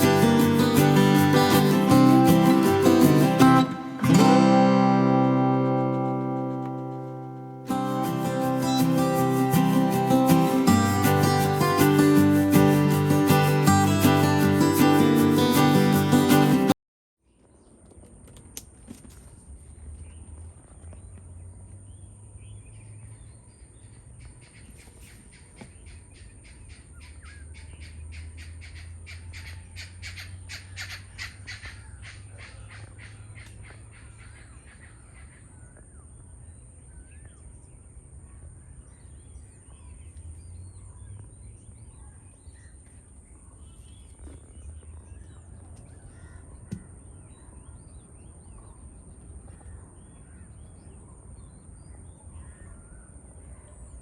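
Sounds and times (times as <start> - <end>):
birds harsh calls: 23.6 - 35.8.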